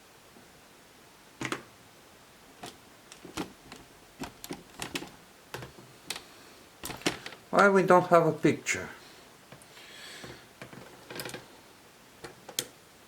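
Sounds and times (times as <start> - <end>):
laptop clicks and taps: 1.4 - 1.7.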